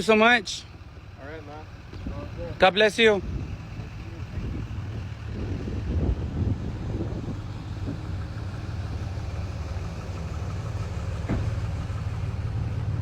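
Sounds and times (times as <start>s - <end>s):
heavy vehicle rumbling: 0.0s - 13.0s
short knock: 11.2s - 11.6s.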